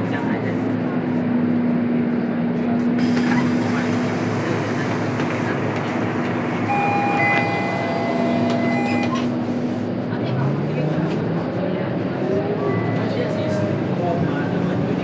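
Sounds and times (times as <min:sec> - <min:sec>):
bus diesel engine drone: 0:00.0 - 0:15.0
road and body noise: 0:01.5 - 0:12.4.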